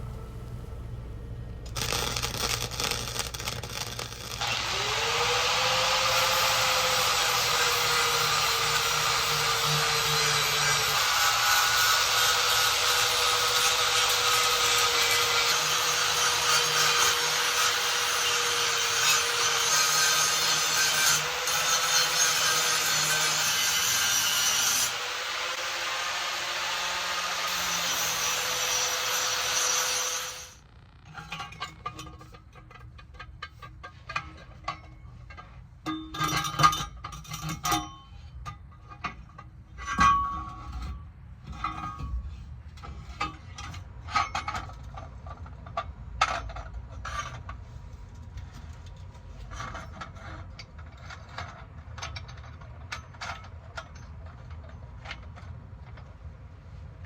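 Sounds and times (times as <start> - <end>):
power tool grinding: 1.7 - 31.4
metal tools clinking: 31.0 - 42.2.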